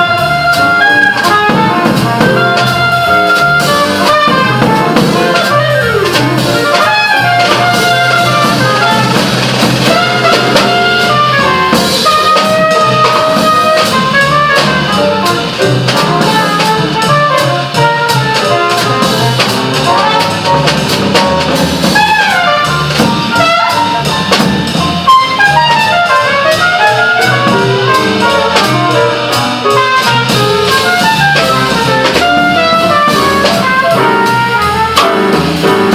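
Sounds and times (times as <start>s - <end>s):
saxophone: 0.0s - 9.3s
drum kit: 0.0s - 35.9s
trumpet: 0.0s - 35.9s.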